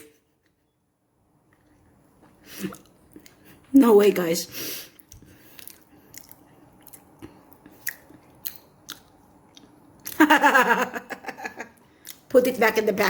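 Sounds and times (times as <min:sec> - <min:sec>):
person chewing food: 0:01.5 - 0:03.7, 0:05.0 - 0:10.3, 0:11.7 - 0:12.3.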